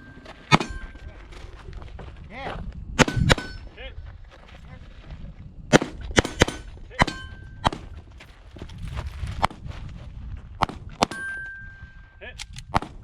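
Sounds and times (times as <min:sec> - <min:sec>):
metallic ring of struck steel: 0:00.0 - 0:01.2, 0:07.0 - 0:07.7, 0:11.1 - 0:12.1
pistol shots: 0:03.0 - 0:03.6, 0:05.7 - 0:07.9, 0:12.5 - 0:13.0.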